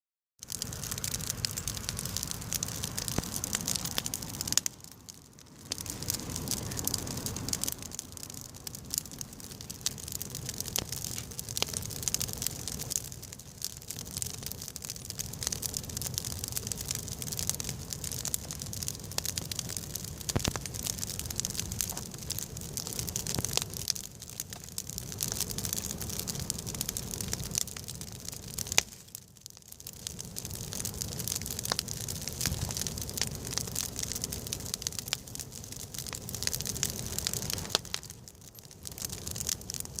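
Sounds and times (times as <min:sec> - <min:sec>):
campfire crackling and popping: 0:00.4 - 0:40.0
fire hissing: 0:00.5 - 0:40.0.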